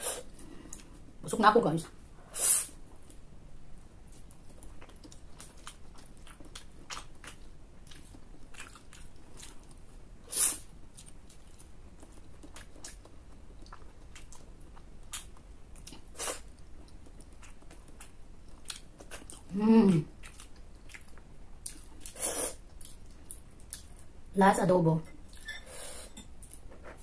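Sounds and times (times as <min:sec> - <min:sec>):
person chewing crunchy food: 0:04.0 - 0:24.2.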